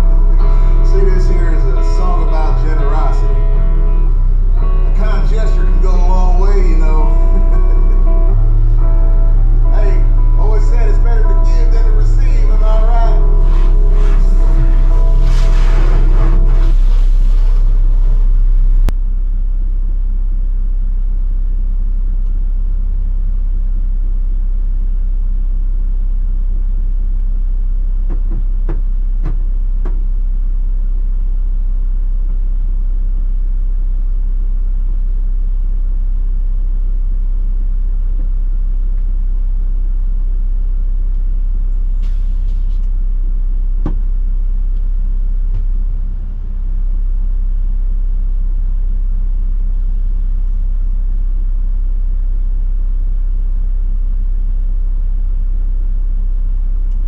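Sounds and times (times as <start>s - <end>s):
truck engine rumbling: 0.0s - 19.2s, 40.5s - 47.3s.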